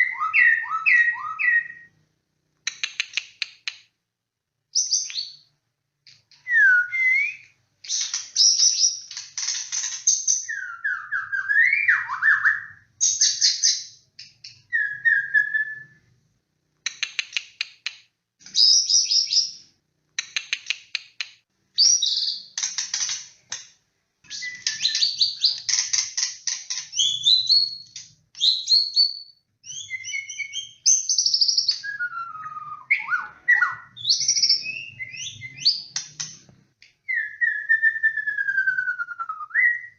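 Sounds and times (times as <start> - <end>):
songbird singing varied song: 0.0 - 1.9, 26.9 - 36.3, 37.1 - 39.9.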